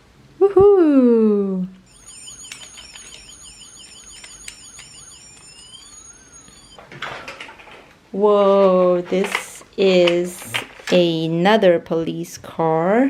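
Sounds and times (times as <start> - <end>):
toy electronic siren wailing: 1.8 - 7.0.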